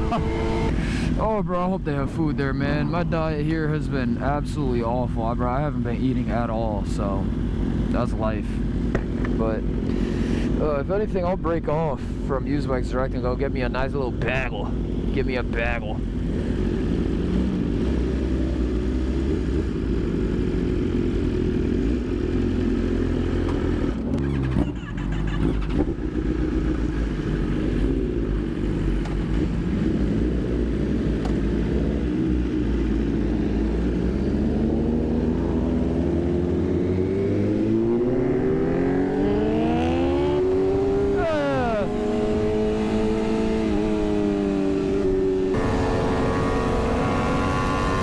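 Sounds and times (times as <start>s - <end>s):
motorbike engine revving: 0.0s - 1.2s, 16.1s - 48.0s.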